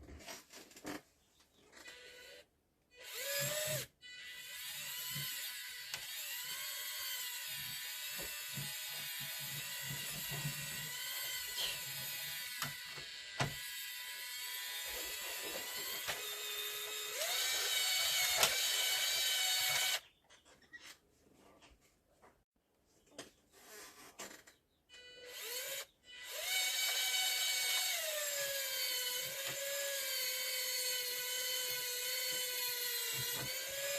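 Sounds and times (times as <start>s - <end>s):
small electric motor whining: 1.8s - 20.0s, 25.0s - 33.9s.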